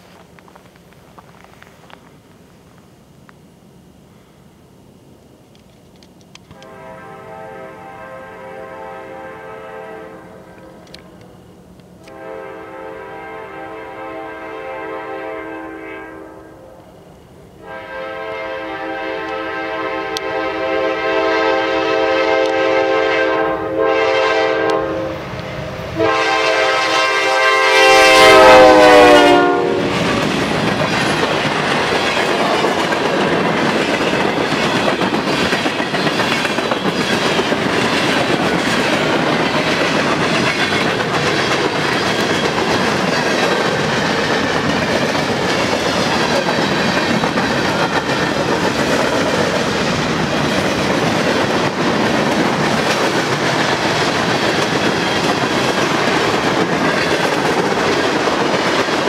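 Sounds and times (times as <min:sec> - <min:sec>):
locomotive horn blast: 0:06.5 - 0:11.4, 0:12.0 - 0:16.9, 0:17.6 - 0:30.1
freight train cars clattering past: 0:16.9 - 0:59.0.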